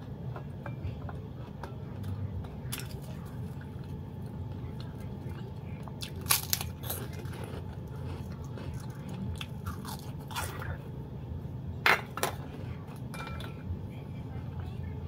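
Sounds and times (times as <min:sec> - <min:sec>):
person chewing crackers: 0:01.0 - 0:10.8.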